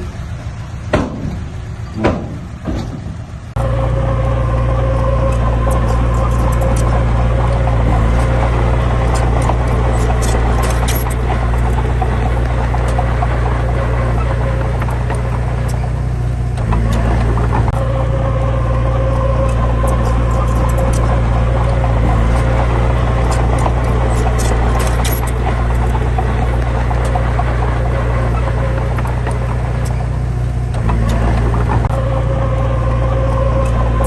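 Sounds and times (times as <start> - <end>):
heavy vehicle diesel engine: 0.0 - 34.0
faint rattling ticks: 23.2 - 31.9.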